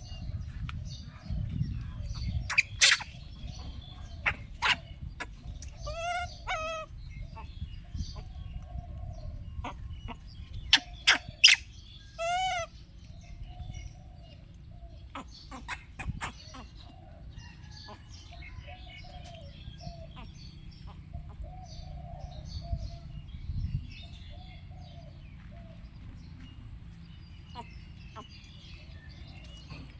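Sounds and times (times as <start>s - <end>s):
animal short high calls: 2.5s - 3.2s, 4.2s - 7.5s, 9.6s - 11.6s, 12.2s - 12.7s.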